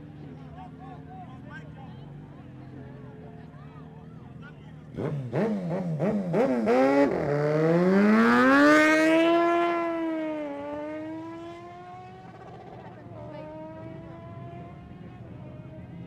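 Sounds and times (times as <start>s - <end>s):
motorcycle engine accelerating: 4.8s - 16.0s.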